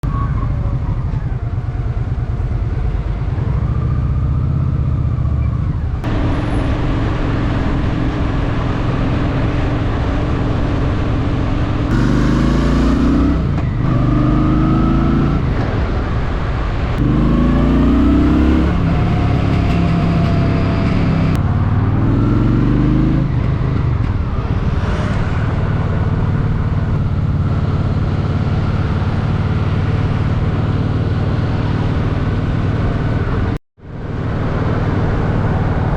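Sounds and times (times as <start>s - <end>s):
motorcycle engine shifting up: 4.8s - 15.8s.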